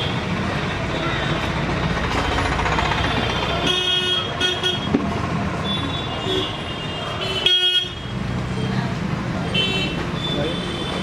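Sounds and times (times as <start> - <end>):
engine and traffic rumble: 0.0 - 11.0
vehicle horns tooting: 3.0 - 5.0, 5.6 - 8.1.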